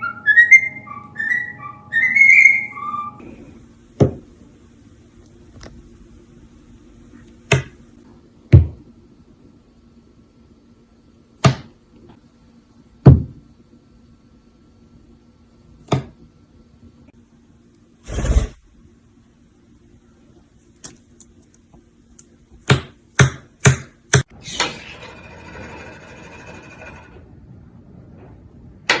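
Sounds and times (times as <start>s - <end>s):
parrot whistling a tune: 0.0s - 3.2s.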